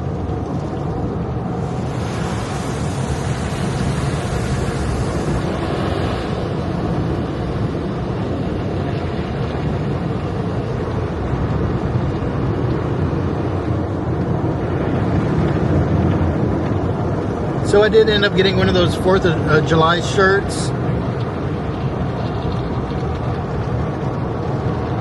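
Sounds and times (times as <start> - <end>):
car wash water spray: 0.0 - 25.0
low rumble: 0.0 - 25.0.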